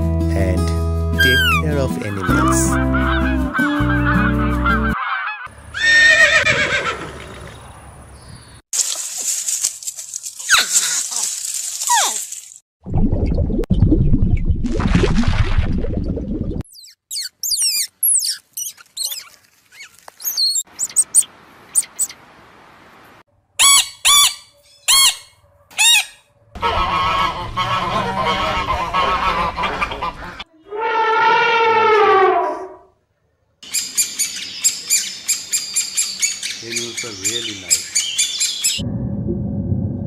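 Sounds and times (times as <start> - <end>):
harsh bird squawking: 1.2 - 6.9, 16.7 - 22.2, 23.6 - 30.4
short high bird chirps: 16.7 - 22.2
rising and falling bird calls: 33.6 - 38.8.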